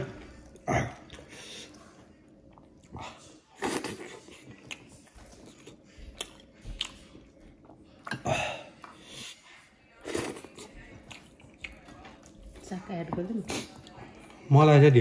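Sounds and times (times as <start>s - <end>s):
person chewing: 0.2s - 9.4s, 10.0s - 12.4s.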